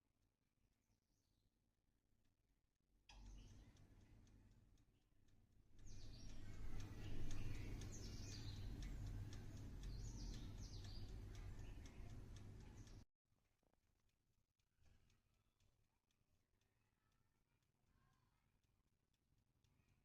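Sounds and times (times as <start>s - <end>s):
faint ticks: 3.1s - 13.0s
birds chirping: 5.8s - 13.0s.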